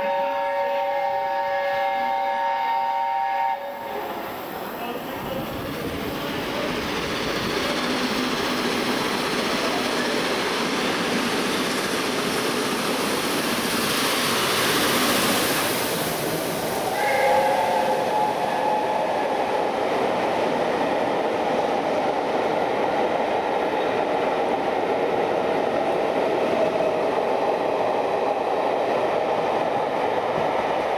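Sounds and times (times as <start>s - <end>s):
steam train passing: 0.0s - 30.9s
hissing rush: 3.0s - 20.0s.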